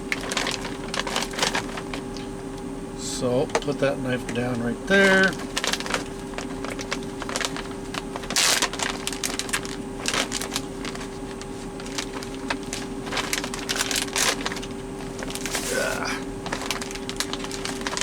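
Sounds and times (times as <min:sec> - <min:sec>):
steady hum: 0:00.0 - 0:18.0
plastic packaging crinkling: 0:00.1 - 0:02.3, 0:04.9 - 0:18.0.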